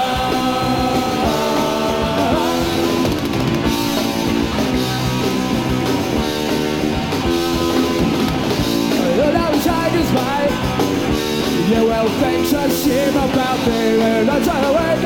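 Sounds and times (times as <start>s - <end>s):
drum kit: 0.0s - 15.0s
electric guitar: 0.0s - 15.0s.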